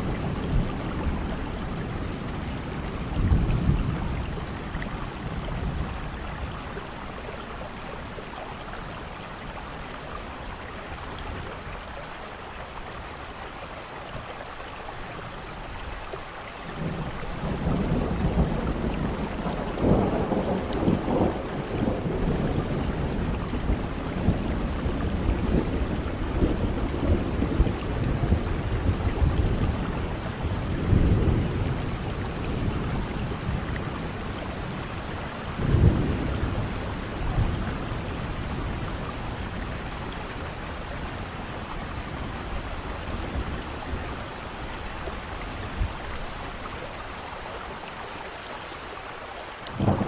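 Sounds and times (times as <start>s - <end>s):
steady rain: 0.0s - 50.0s
thunder rumbling: 16.7s - 47.3s, 49.7s - 50.0s.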